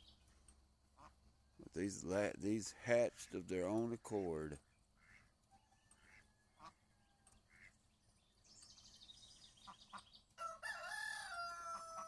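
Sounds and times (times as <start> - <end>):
small birds chirping: 0.0 - 10.6
rooster crowing: 10.4 - 12.0.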